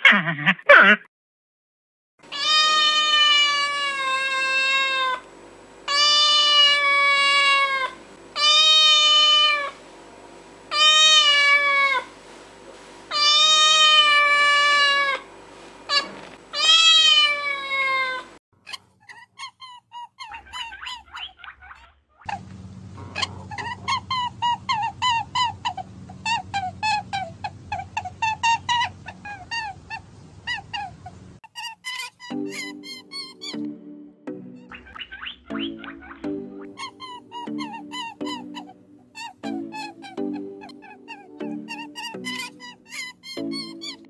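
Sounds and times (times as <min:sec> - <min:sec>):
cat meowing: 0:02.3 - 0:05.2, 0:05.9 - 0:09.8, 0:10.7 - 0:12.1, 0:13.1 - 0:15.2, 0:15.9 - 0:18.3.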